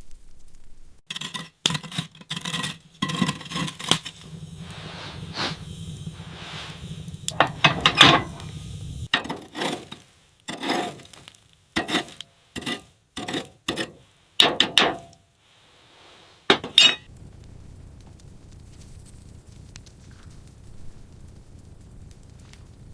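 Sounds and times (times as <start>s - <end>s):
knocks and clinks: 16.5s - 17.0s.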